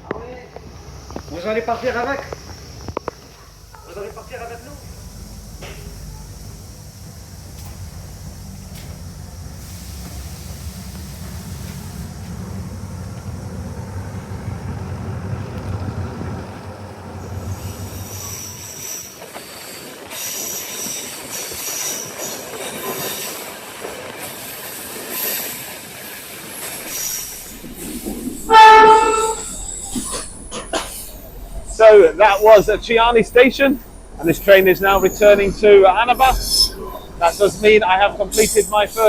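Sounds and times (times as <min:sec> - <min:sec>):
train low rumble: 0:00.0 - 0:39.0
train wheel squeal: 0:00.3 - 0:39.0
train horn blast: 0:26.9 - 0:38.9.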